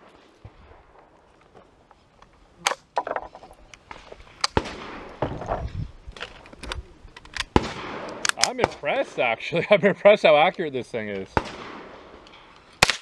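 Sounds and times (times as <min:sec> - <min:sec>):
gunshots: 0:03.9 - 0:05.5, 0:07.3 - 0:09.3, 0:11.3 - 0:13.0.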